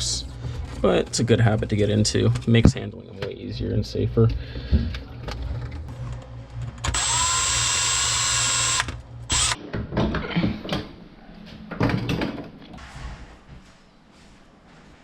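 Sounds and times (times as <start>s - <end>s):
cordless drill motor spinning: 6.8s - 9.6s.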